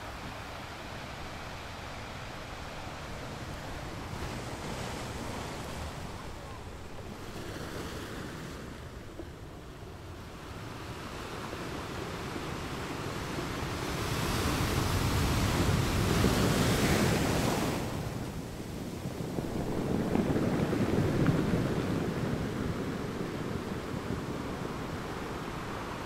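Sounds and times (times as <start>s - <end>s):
wind buffeting microphone: 0.0s - 26.0s
sea water washing: 12.5s - 26.0s.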